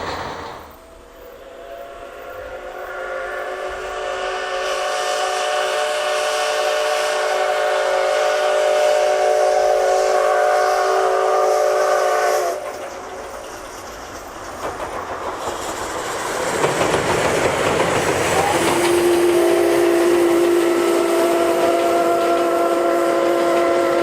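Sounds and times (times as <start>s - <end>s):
steam whistle blast: 0.0s - 12.6s, 18.2s - 24.0s
train rumbling on rails: 0.0s - 24.0s.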